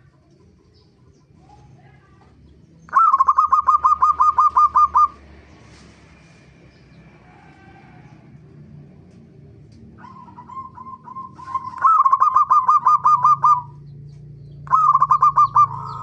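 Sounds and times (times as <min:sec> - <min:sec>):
faint bird calls: 0:00.0 - 0:06.0, 0:10.0 - 0:16.0
dove calling in clipped notes: 0:02.8 - 0:05.3, 0:09.8 - 0:16.0.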